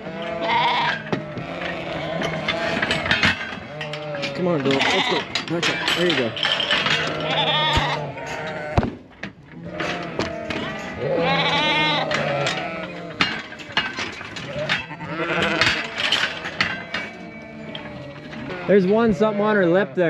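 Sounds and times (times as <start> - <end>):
sheep bleating: 0.0 - 8.9, 9.5 - 13.8, 14.4 - 20.0
sharp knocks: 8.7 - 10.8.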